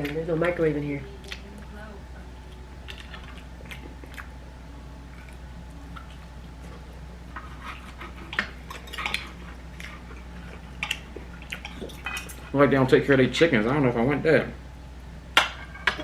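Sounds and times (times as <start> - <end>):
steady low hum: 0.0 - 16.0
chewing with clicks and smacks: 2.5 - 4.4, 8.8 - 12.4.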